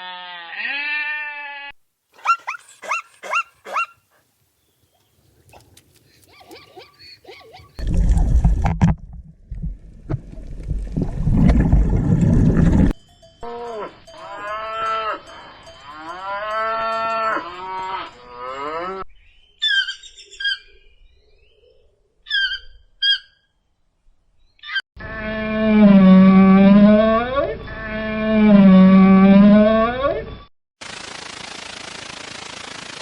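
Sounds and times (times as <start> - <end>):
cow mooing: 13.4 - 19.0, 25.0 - 30.0.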